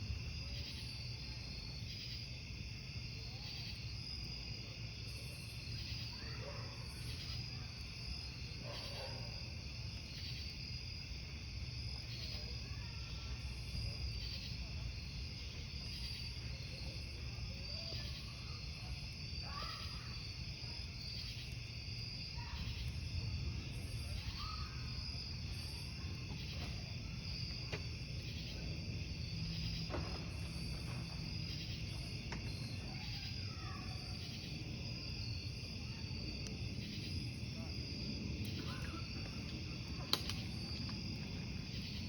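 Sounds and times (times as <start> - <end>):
crickets chirping: 0.0 - 42.0
campfire crackling and popping: 13.3 - 33.4, 34.0 - 41.6.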